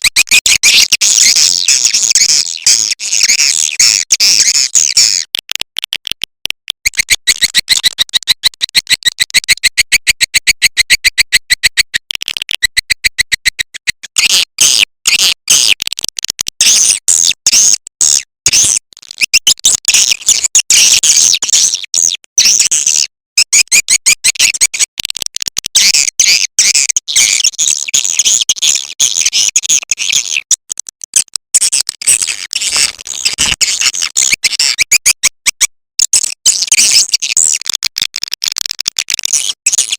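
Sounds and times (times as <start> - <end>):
swiftlet calls chattering: 6.8 - 14.0.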